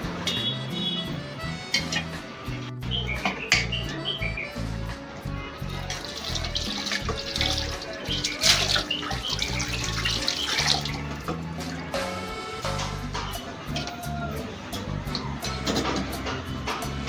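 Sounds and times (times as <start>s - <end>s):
background music with bass line: 0.0s - 17.0s
tap water running into sink: 5.7s - 12.0s.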